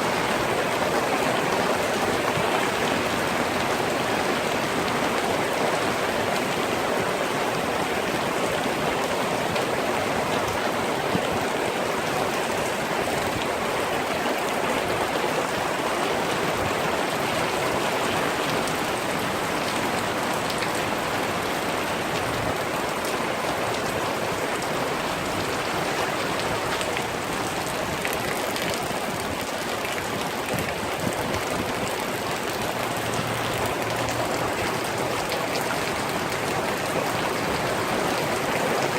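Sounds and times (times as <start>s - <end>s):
rain falling steadily: 0.0s - 38.9s.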